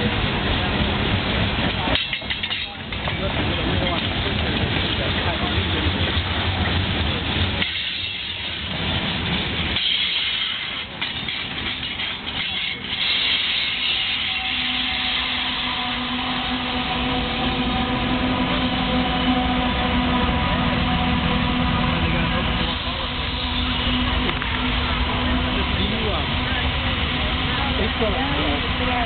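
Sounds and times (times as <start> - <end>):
train wheels clattering on rails: 0.0 - 20.1
diesel locomotive drone: 0.0 - 29.0.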